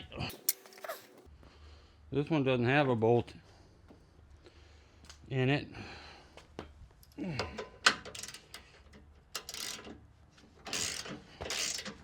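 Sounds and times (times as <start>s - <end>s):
metal hardware clicks and clinks: 0.3s - 1.2s.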